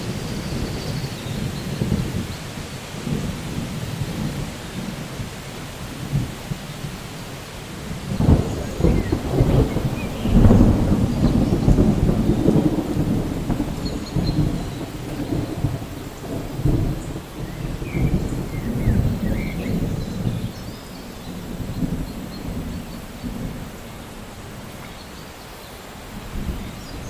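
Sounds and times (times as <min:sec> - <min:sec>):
rolling thunder rumble: 0:00.0 - 0:25.3, 0:25.9 - 0:27.0
steady rain: 0:00.0 - 0:27.0.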